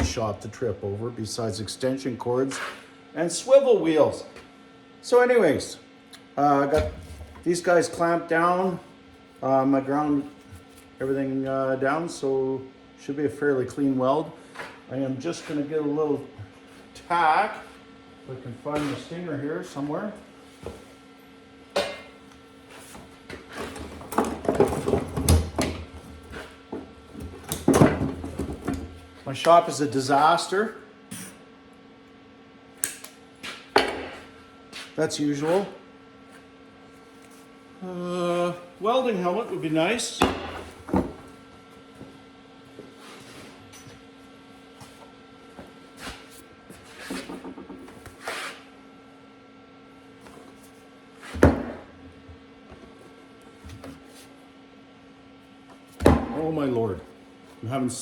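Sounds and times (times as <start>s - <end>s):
electrical hum: 0.0s - 58.0s
objects knocking and clattering: 23.5s - 29.0s.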